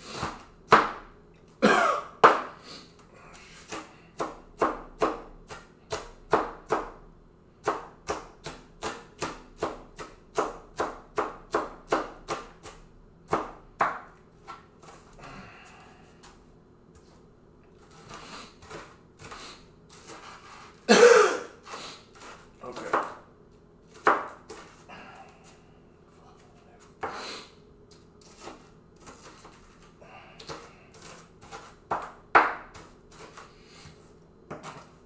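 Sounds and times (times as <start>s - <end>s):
knife chopping on cutting board: 0.2s - 1.1s, 2.2s - 2.6s, 3.6s - 7.0s, 7.6s - 15.0s, 22.2s - 23.2s, 23.9s - 24.8s, 27.9s - 29.8s, 30.4s - 33.5s, 34.5s - 34.9s.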